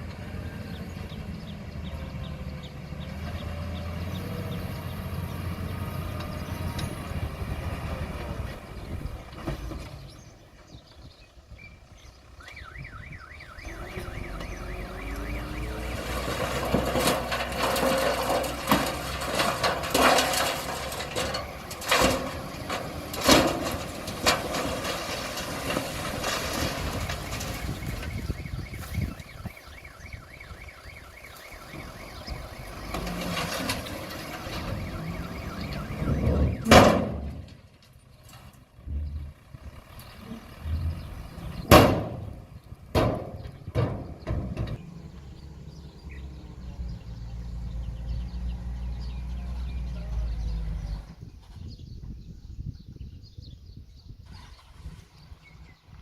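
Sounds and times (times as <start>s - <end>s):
bulldozer diesel engine revving: 0.0s - 10.3s, 13.6s - 28.4s, 31.7s - 51.2s
metallic knocks and clanks: 41.6s - 44.9s.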